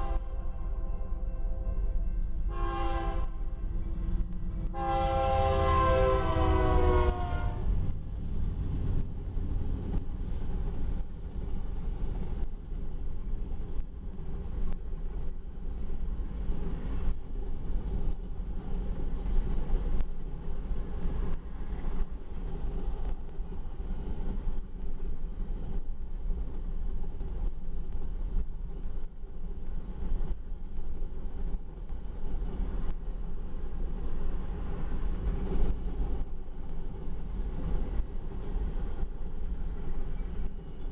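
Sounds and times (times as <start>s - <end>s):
train horn: 0.0s - 3.8s, 4.6s - 7.7s
train wheels rumbling on rail: 0.0s - 40.9s.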